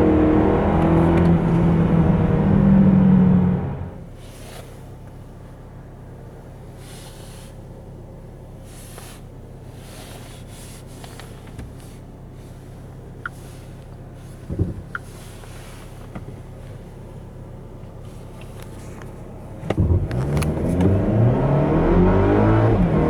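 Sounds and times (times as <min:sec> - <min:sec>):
car engine running: 0:00.0 - 0:04.3, 0:05.0 - 0:23.0.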